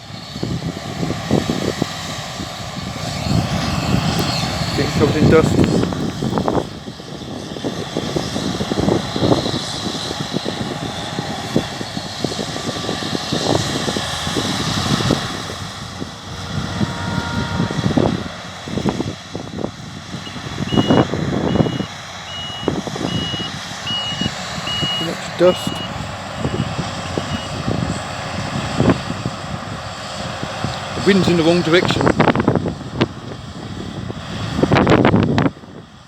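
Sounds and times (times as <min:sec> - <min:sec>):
farm machinery running: 0:00.0 - 0:36.0
wind buffeting microphone: 0:00.0 - 0:36.0
vehicle reversing alarm beeping: 0:20.2 - 0:27.6.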